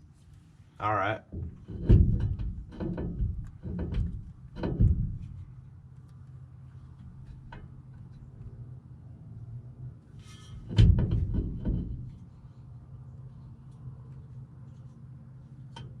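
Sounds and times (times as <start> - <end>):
low steady hum: 0.0 - 16.0
heavy clunks: 1.3 - 5.5, 10.3 - 12.3
short rattle: 1.3 - 5.7, 10.2 - 12.4.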